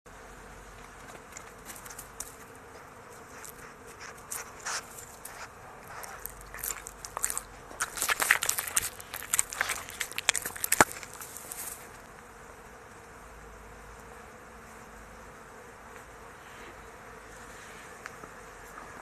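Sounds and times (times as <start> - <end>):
cat crunching food: 3.3 - 11.9.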